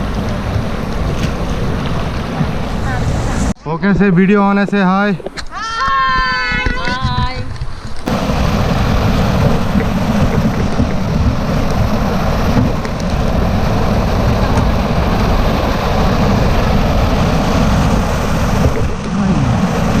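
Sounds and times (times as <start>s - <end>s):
river water rushing: 0.0s - 3.5s, 8.0s - 20.0s
wind buffeting microphone: 0.0s - 3.6s, 4.6s - 20.0s.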